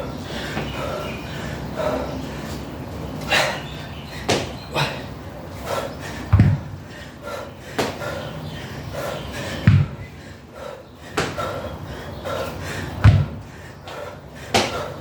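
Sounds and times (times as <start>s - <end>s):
dumbbell thumping on floor: 6.3s - 6.8s, 9.6s - 10.0s, 13.0s - 13.4s.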